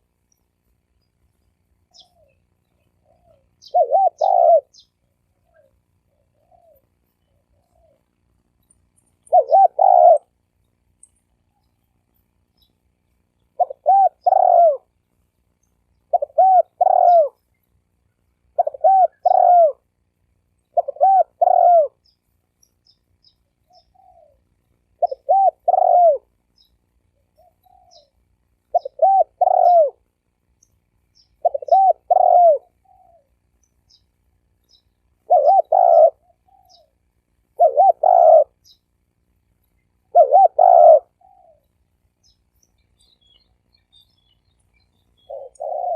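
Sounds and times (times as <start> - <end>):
dove cooing: 1.9 - 8.1, 9.2 - 10.4, 13.6 - 14.9, 16.1 - 17.4, 18.5 - 19.9, 20.7 - 22.0, 23.6 - 26.4, 27.2 - 30.0, 31.4 - 33.4, 35.2 - 38.8, 40.0 - 42.4, 45.2 - 45.9.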